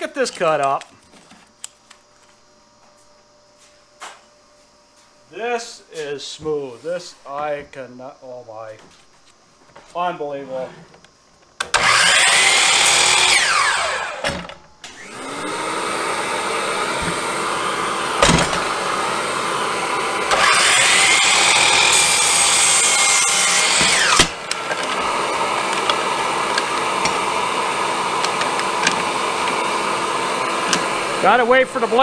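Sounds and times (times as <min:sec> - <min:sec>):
miter saw motor: 0:11.6 - 0:32.0
saw cutting through wood boards: 0:11.7 - 0:32.0.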